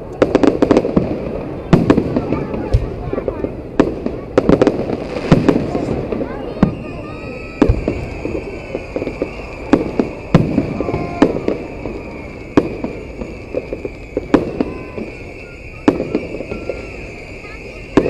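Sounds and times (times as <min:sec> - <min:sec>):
crackling firework pops: 0:00.0 - 0:18.0
firework bangs: 0:00.0 - 0:18.0.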